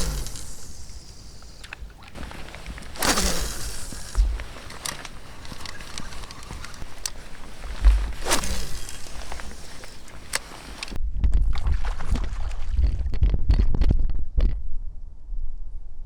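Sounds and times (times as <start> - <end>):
small knocks: 0.0 - 11.0
oars swishing through water: 0.0 - 12.8.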